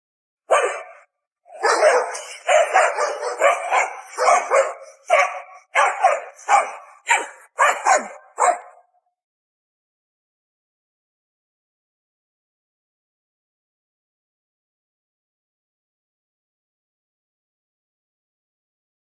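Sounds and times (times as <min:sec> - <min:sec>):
dog barking: 0:00.5 - 0:09.0.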